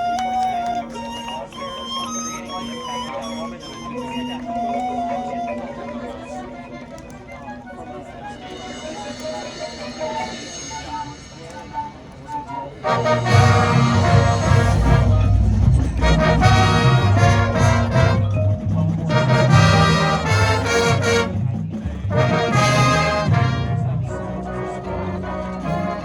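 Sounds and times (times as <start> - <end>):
marching band brass: 12.7 - 26.0.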